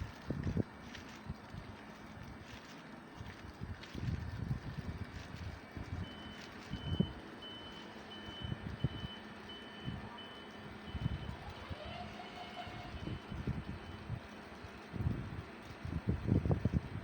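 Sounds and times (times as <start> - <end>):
wind gusts on microphone: 3.2 - 7.2, 12.7 - 17.0.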